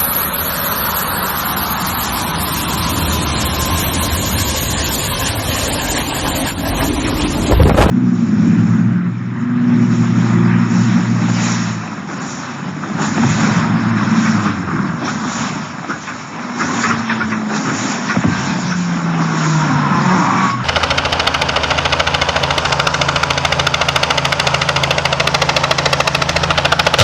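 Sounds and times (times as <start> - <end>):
aircraft engine droning hum: 0.0 - 11.2
rushing wind-like roar: 0.0 - 22.3.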